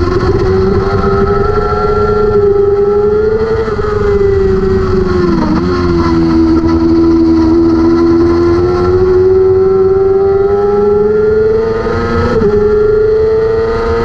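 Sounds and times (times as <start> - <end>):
motorcycle engine at high revs: 0.0 - 14.0.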